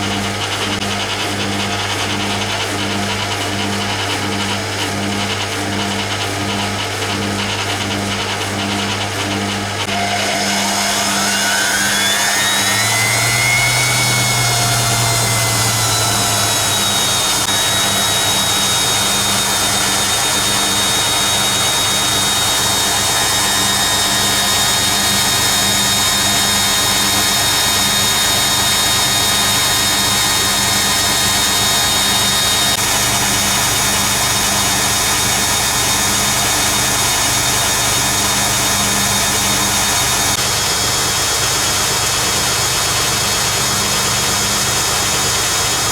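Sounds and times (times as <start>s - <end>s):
washing machine spinning: 0.0s - 45.9s.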